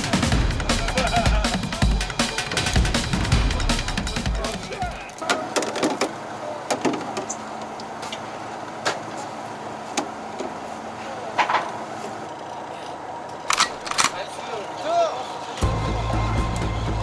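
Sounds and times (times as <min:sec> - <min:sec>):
boat engine humming: 0:06.2 - 0:17.0.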